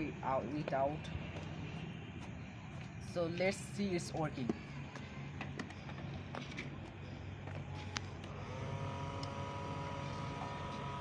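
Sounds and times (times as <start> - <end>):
small electric motor whining: 7.8 - 11.0.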